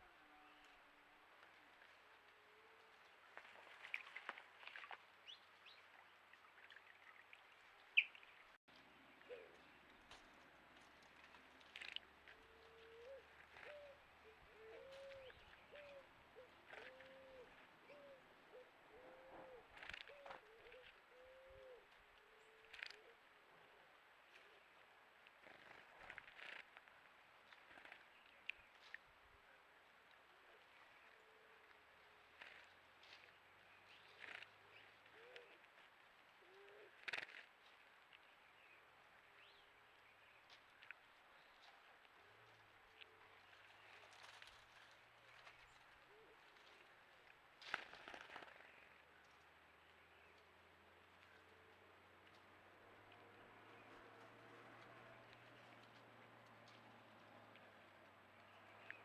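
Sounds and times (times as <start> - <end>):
dove cooing: 12.5 - 21.8, 35.1 - 35.6.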